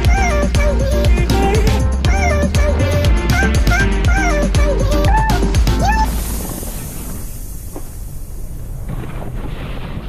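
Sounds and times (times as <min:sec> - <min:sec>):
wind buffeting microphone: 0:06.1 - 0:10.0.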